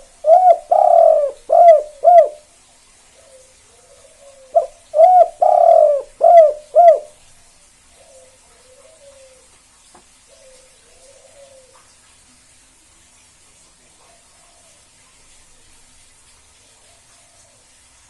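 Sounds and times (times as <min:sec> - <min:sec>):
dove cooing: 0:00.0 - 0:02.5, 0:03.1 - 0:07.2, 0:07.9 - 0:09.5, 0:10.3 - 0:11.9.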